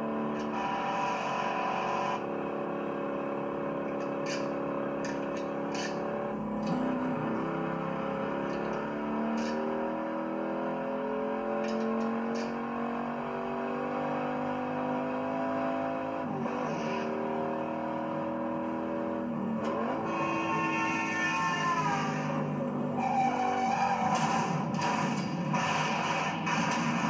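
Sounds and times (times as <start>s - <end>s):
car engine revving hard: 0.0s - 27.0s.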